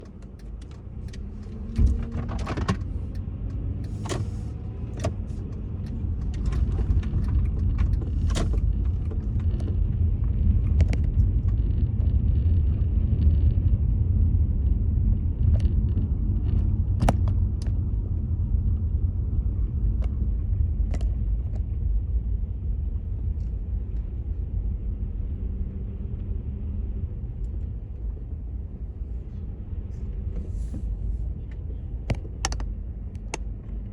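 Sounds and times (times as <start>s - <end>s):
knocks and clicks: 0.0s - 9.8s.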